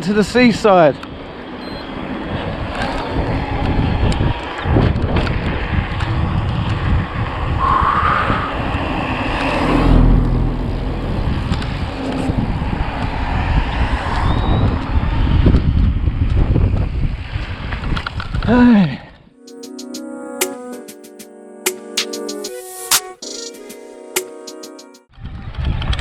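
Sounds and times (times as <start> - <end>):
wind buffeting microphone: 0.2 - 18.5
rising whine: 0.7 - 15.9.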